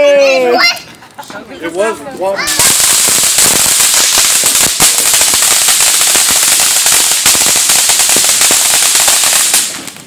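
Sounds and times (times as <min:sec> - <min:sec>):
firework crackling: 0:02.1 - 0:10.0.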